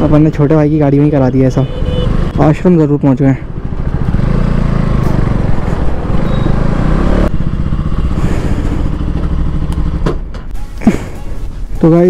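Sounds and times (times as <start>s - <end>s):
motorcycle engine at low revs: 3.4s - 10.6s.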